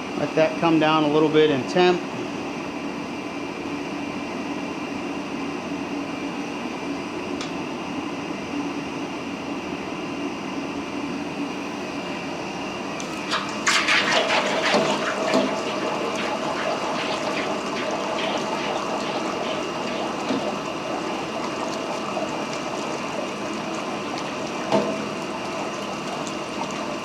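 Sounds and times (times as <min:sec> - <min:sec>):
water sizzling and crackling on hot steel: 0:13.0 - 0:27.0.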